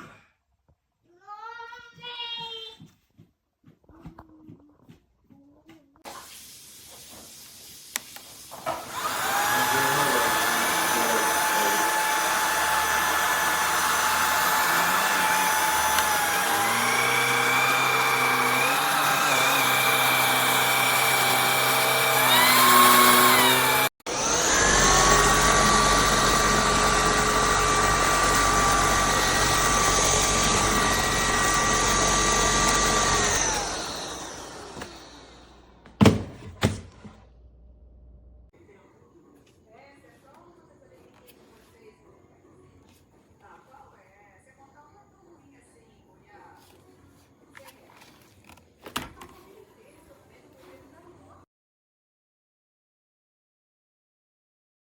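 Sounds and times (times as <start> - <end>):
vacuum motor whining: 8.7 - 36.0.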